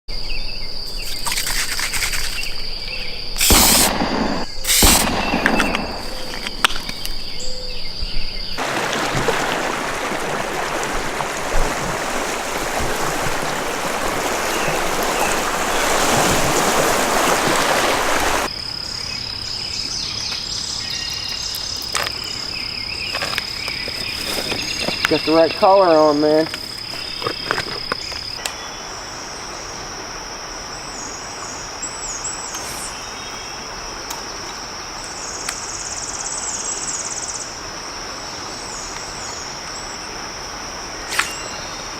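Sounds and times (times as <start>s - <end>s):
insects trilling: 0.1s - 41.9s
loud rushing hiss: 3.4s - 6.3s.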